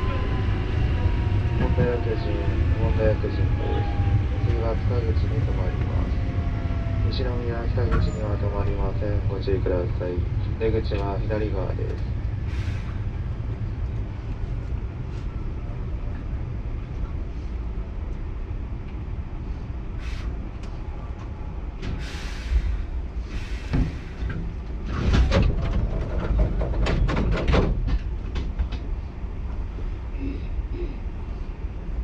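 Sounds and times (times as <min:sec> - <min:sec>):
train wheels rumbling on rail: 0:00.0 - 0:32.0
wheels clacking over rail joints: 0:23.8 - 0:29.0.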